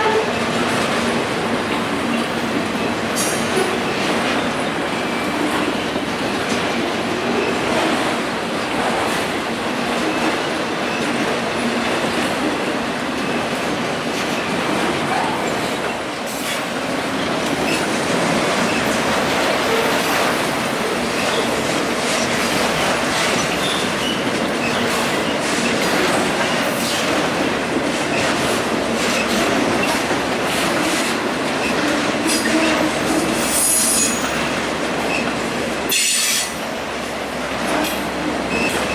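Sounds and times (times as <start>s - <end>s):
high wheel squeal: 32.3s - 34.4s.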